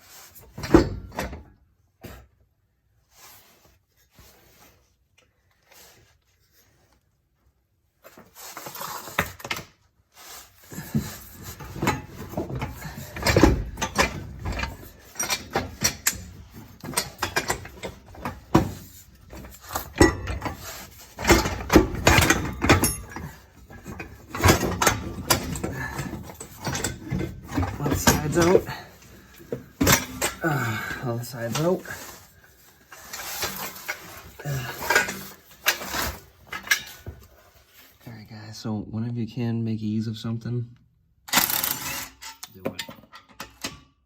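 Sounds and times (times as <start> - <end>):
metal exhaust pipes clanking and scraping: 10.2 - 38.0.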